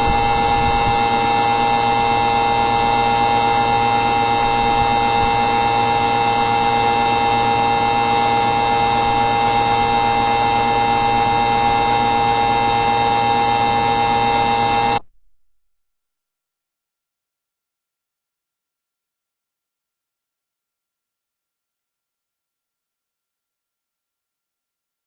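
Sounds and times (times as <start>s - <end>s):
loud buzzing hum: 0.0s - 15.0s.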